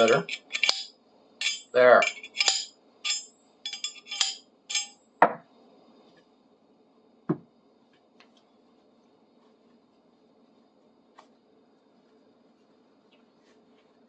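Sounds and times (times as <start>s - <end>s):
hand tools clinking on metal: 0.0s - 5.0s.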